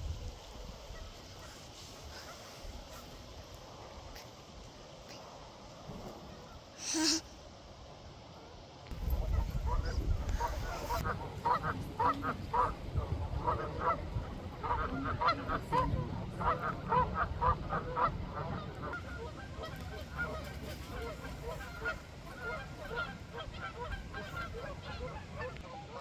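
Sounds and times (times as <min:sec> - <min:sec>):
flock of ducks quacking: 0:08.9 - 0:26.0.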